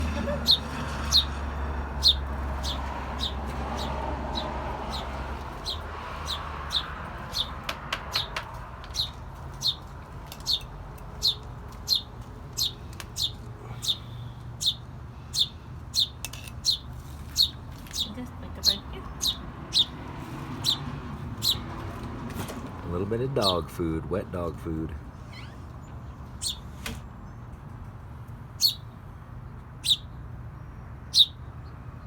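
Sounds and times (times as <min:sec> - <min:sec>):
sparrow chirping: 0:00.0 - 0:21.9, 0:22.9 - 0:23.8, 0:25.1 - 0:27.5, 0:28.5 - 0:32.0.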